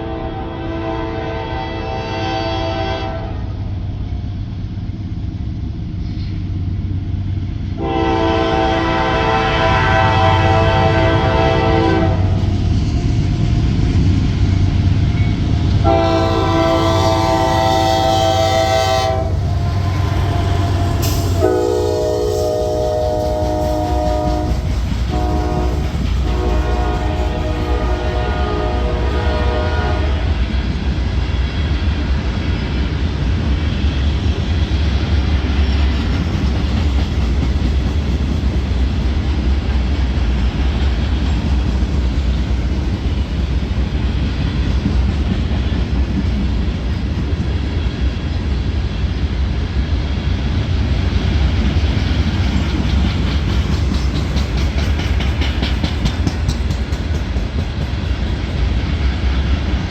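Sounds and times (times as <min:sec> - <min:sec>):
train wheels rumbling on rail: 0:00.0 - 0:59.9
wheels clicking and clacking: 0:52.0 - 0:58.7.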